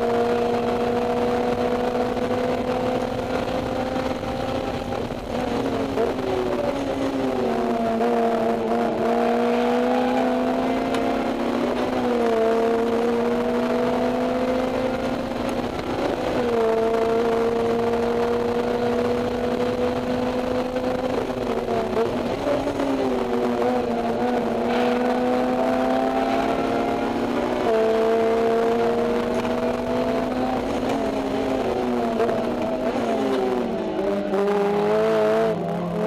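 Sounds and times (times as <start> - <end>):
car engine revving high: 0.0 - 36.0.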